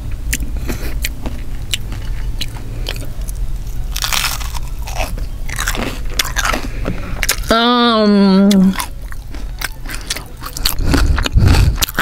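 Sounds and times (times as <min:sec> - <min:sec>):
crunchy chewing: 0:00.0 - 0:07.5, 0:08.4 - 0:12.0
low steady hum: 0:00.0 - 0:12.0.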